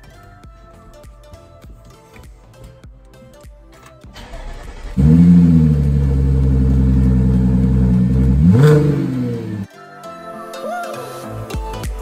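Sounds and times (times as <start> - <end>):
car engine starting and idling: 4.2 - 9.7
engine revving: 4.2 - 9.7.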